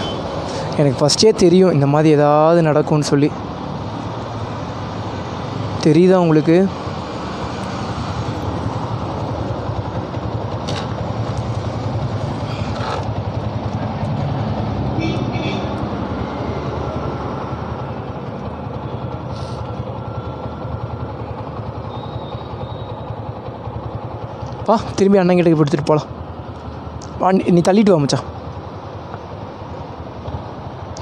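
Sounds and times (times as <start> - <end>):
road traffic passing: 0.0 - 31.0.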